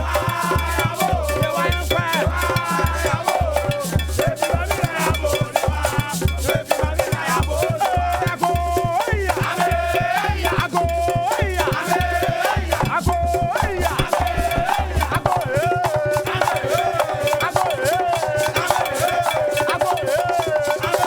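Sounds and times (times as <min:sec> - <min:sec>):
shaker: 0:00.0 - 0:21.0
bass beat: 0:12.8 - 0:15.7.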